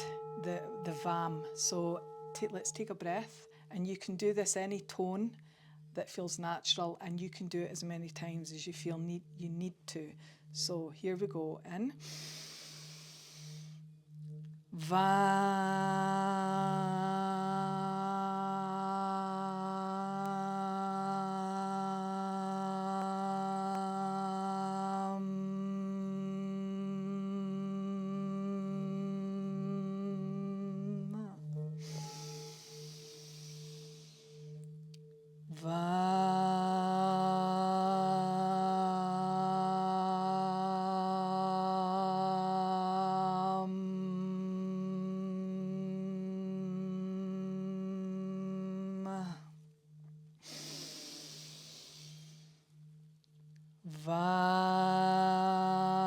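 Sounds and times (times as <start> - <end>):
singing bowl ringing: 0.0 - 4.0, 31.1 - 36.0
woman chanting: 0.0 - 13.7, 14.8 - 34.5, 35.5 - 49.6, 50.4 - 52.5, 53.8 - 56.0
in-breath: 5.4 - 5.9, 10.2 - 10.6, 12.0 - 13.8, 31.8 - 34.6, 50.4 - 52.8.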